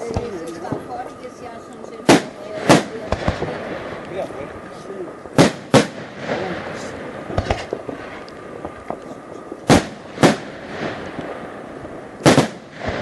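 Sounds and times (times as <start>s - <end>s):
distant firework bangs and crackling: 0.0s - 13.0s
loud firework rocket bangs: 2.1s - 4.3s, 5.2s - 9.0s, 9.6s - 13.0s.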